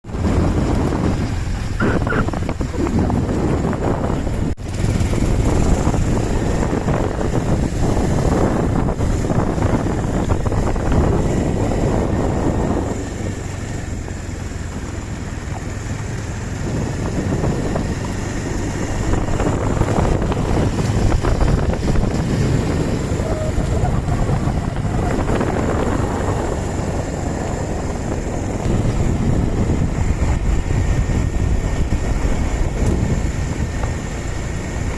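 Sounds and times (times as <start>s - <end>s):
motorcycle engine rumble: 0.0s - 34.9s
wind rushing over microphone: 0.0s - 34.9s.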